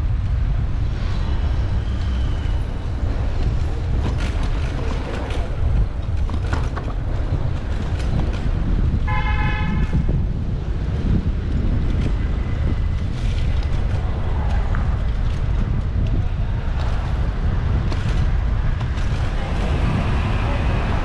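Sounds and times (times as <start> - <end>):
road and traffic noise: 0.0 - 21.0
wind rumble on microphone: 0.0 - 21.0
vehicle horn: 9.0 - 10.1.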